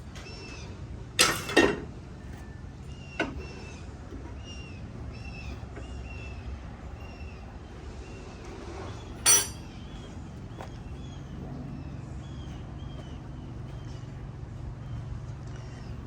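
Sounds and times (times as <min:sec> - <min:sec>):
steady low hum: 0:00.0 - 0:16.0
metallic clank with ring: 0:09.2 - 0:09.7.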